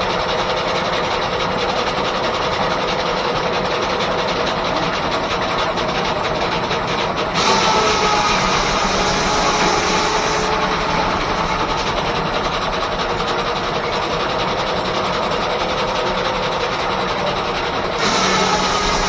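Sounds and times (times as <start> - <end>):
sawmill mechanical clatter: 0.0 - 19.0.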